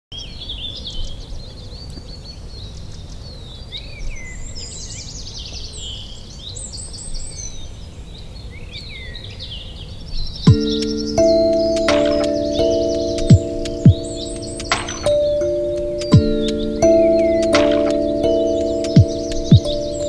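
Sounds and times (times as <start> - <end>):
songbirds chirping and trilling: 0.1 - 20.0
held music notes: 10.5 - 20.0.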